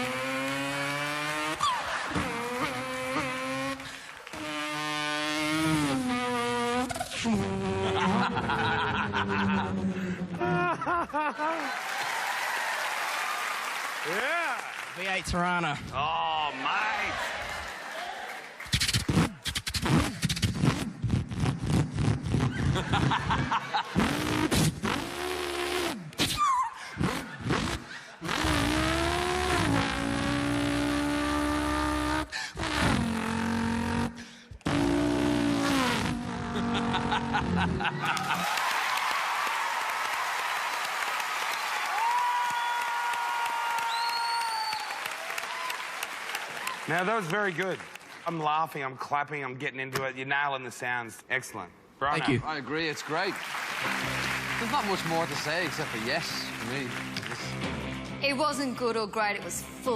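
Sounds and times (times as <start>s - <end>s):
man imitating car engine: 0.0s - 8.6s, 24.0s - 38.3s
vocal tyre squeal: 24.1s - 36.8s.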